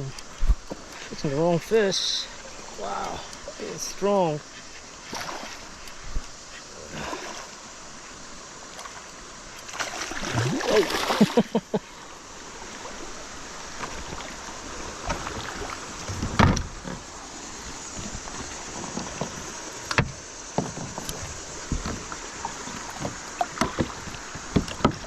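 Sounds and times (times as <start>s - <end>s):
steady hiss: 0.0s - 25.0s
knocks in a plastic kayak: 22.8s - 25.0s.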